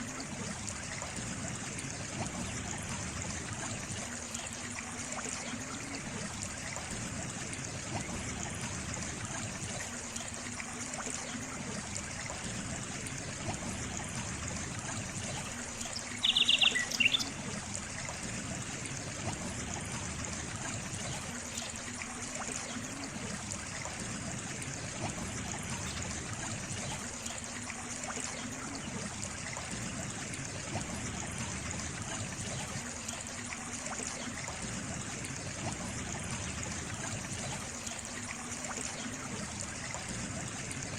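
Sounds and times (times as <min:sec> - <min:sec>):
water trickling: 0:00.0 - 0:40.9
bird chirping call: 0:16.2 - 0:17.3.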